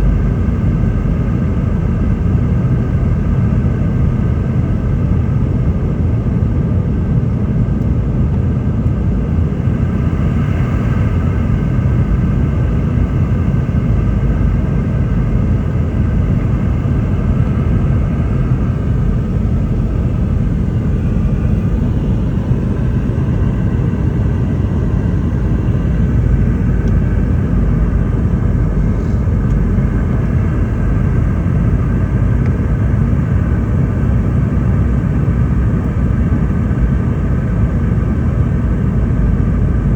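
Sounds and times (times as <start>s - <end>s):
airliner cabin rumble: 0.0s - 39.9s
faint steady hum: 0.0s - 39.9s.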